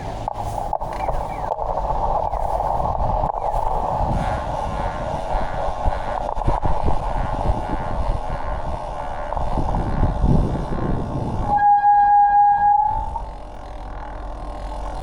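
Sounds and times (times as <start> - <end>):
passing traffic: 0.0 - 15.0
car horn note: 11.5 - 13.2.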